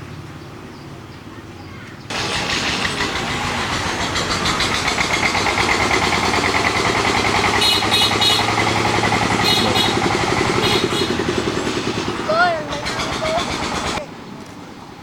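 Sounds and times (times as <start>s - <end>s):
motorbike engine chugging: 2.1s - 14.0s.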